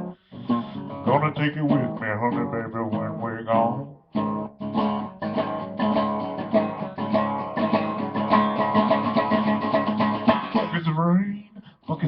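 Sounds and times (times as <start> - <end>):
acoustic guitar plucking: 0.0 - 12.0.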